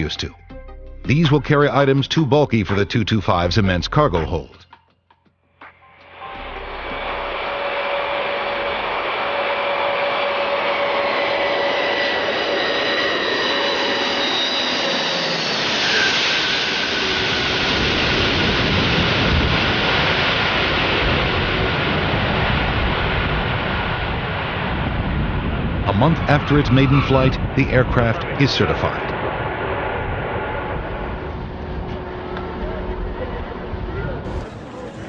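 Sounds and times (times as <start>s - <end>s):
jet aircraft flying past: 6.4s - 32.4s, 34.2s - 35.0s.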